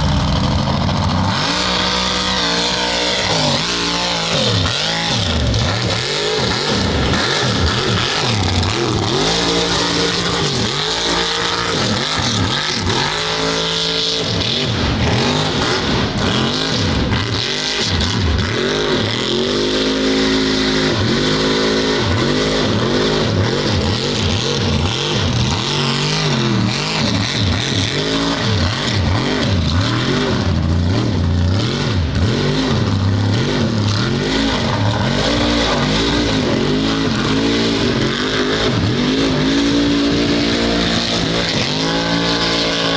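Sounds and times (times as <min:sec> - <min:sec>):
truck engine revving hard: 0:00.0 - 0:42.9.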